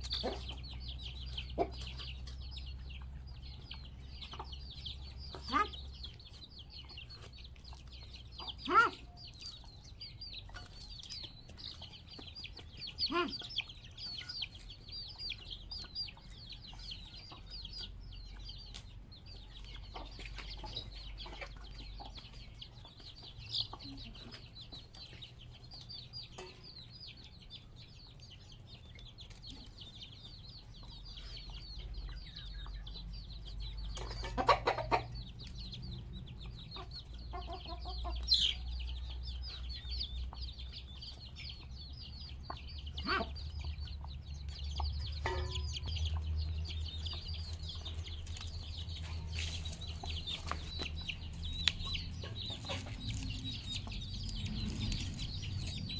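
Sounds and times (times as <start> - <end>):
chickens clucking: 0.0 - 55.9.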